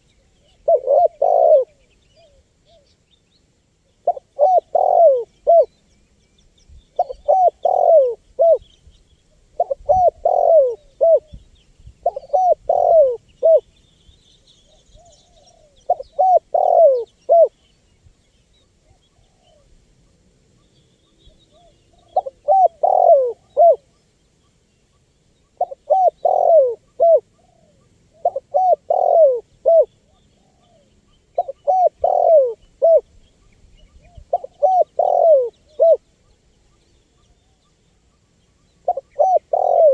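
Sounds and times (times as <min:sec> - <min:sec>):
dove cooing: 0:00.0 - 0:02.8, 0:04.0 - 0:05.7, 0:07.0 - 0:08.6, 0:09.6 - 0:11.4, 0:12.0 - 0:13.6, 0:14.7 - 0:17.6, 0:21.3 - 0:24.0, 0:25.5 - 0:33.1, 0:33.8 - 0:36.1, 0:38.6 - 0:39.9
faint small birds chirping: 0:00.0 - 0:39.9.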